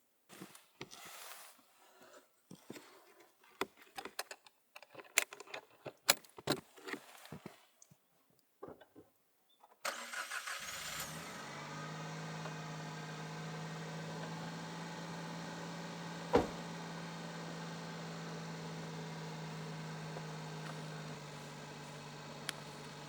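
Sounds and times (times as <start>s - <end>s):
truck engine starting and idling: 9.9s - 23.0s
sharp knock: 16.3s - 16.6s.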